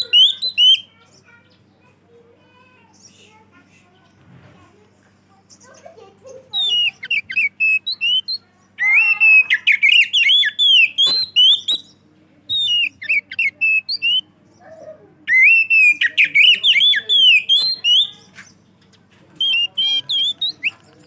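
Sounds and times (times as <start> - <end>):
bird singing whistled phrases: 0.0 - 0.9, 6.5 - 14.7, 15.3 - 18.6, 19.4 - 20.9.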